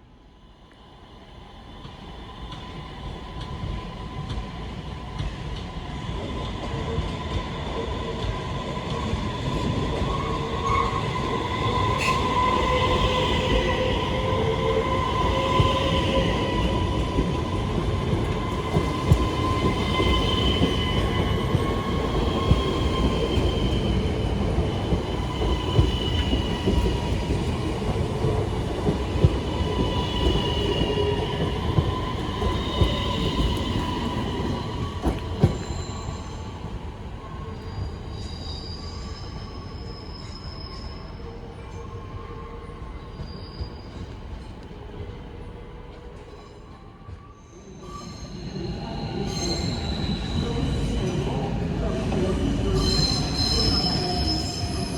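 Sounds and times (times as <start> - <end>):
train rumble: 1.6 - 37.8
train wheels squealing: 2.1 - 54.9.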